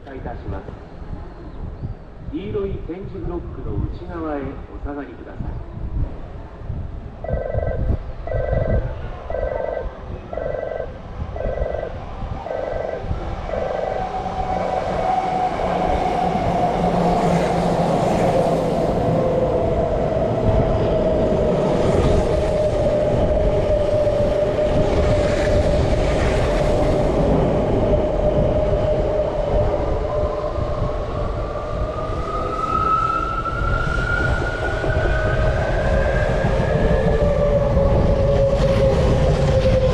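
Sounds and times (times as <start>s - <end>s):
wheels rumbling on rails: 5.4s - 39.9s
platform warning tone: 7.3s - 14.1s.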